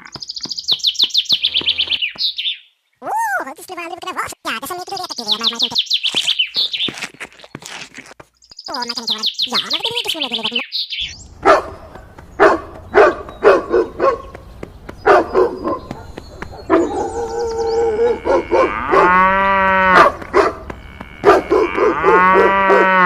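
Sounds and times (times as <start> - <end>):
birds chirping: 0.0 - 23.0
dog barking: 11.4 - 14.4, 15.0 - 19.2, 19.9 - 23.0.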